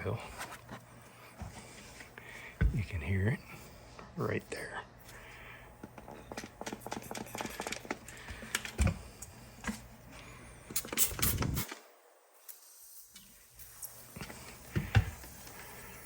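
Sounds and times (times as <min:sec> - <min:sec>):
small clicks and crackles: 0:05.8 - 0:09.8.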